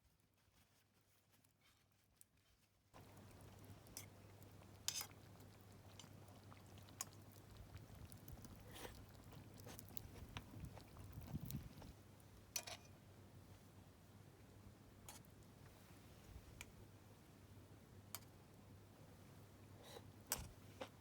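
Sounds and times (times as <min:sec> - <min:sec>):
campfire crackling: 0:03.0 - 0:12.5.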